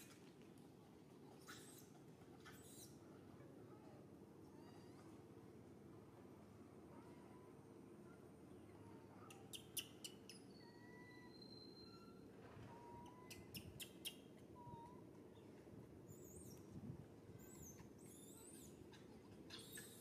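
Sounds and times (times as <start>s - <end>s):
bird calls: 9.3s - 15.0s, 17.4s - 20.0s.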